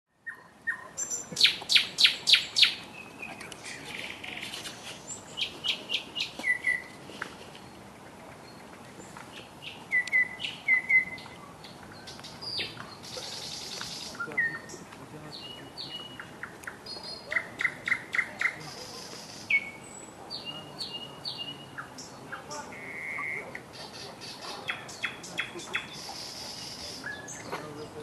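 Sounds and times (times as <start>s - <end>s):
songbirds chirping and trilling: 0.1s - 28.0s
whistled bird notes: 9.6s - 11.4s, 22.7s - 23.6s.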